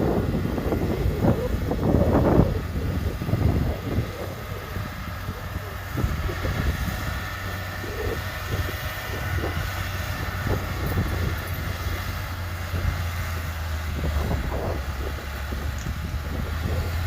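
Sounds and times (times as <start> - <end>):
heavy machinery diesel engine droning: 0.0 - 17.0.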